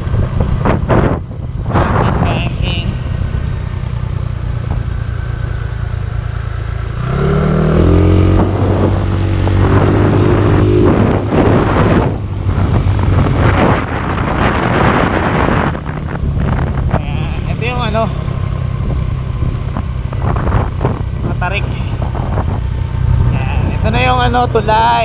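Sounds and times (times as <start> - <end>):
motorcycle engine running: 0.0 - 25.0
wind buffeting microphone: 0.0 - 25.0.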